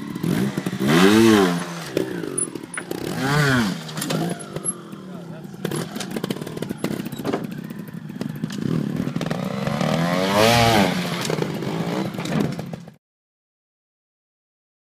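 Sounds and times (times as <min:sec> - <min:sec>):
motorcycle engine blipping: 0:00.0 - 0:10.2
knocks and clatter: 0:00.3 - 0:04.8, 0:05.6 - 0:13.0.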